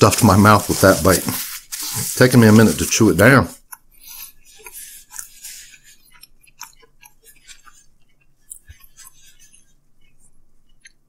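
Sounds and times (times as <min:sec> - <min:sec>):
person chewing food: 0:03.5 - 0:11.0.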